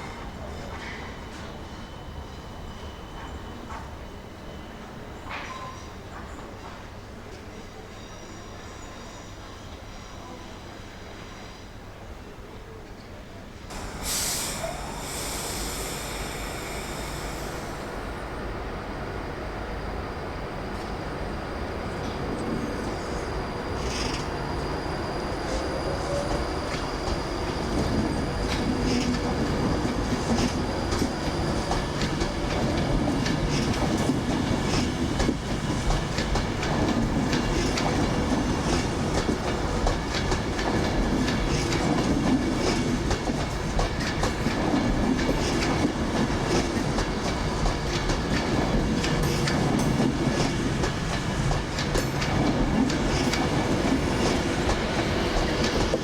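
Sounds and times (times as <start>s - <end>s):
train rumbling past: 13.6s - 56.0s.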